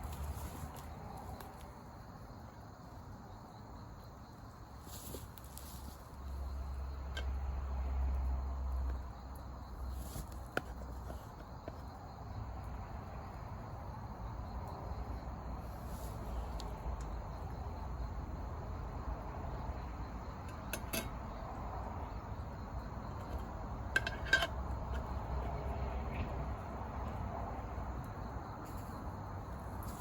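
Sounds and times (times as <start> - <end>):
insects chirring: 0.0 - 30.0
light metallic clinks: 20.4 - 21.2.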